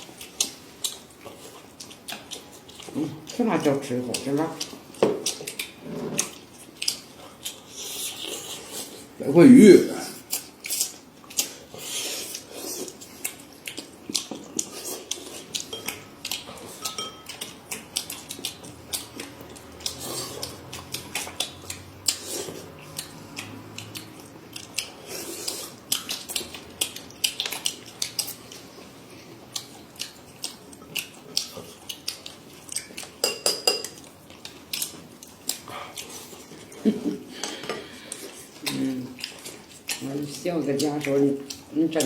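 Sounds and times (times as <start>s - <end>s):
faint chewing: 0.0s - 9.2s, 10.0s - 42.0s.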